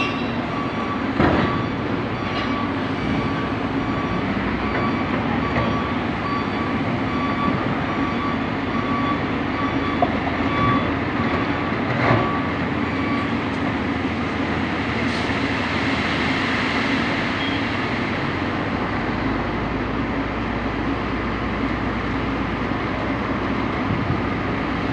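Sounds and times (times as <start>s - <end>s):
warning beeps: 0.0s - 13.4s
heavy diesel machinery running: 0.0s - 24.9s.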